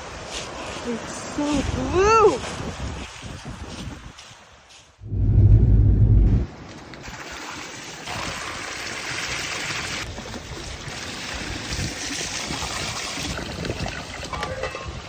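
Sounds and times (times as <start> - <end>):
river water running: 0.0 - 2.9.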